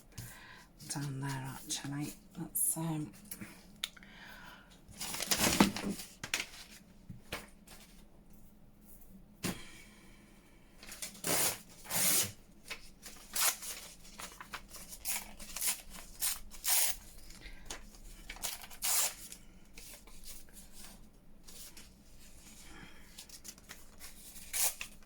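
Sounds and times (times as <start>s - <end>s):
paper rustling and scraping: 5.0s - 8.1s, 10.8s - 25.0s.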